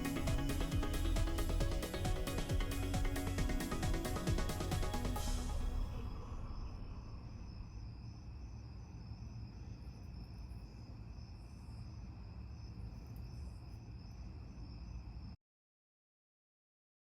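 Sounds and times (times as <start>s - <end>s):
background music: 0.0s - 7.5s
steady low rumble: 0.0s - 13.0s.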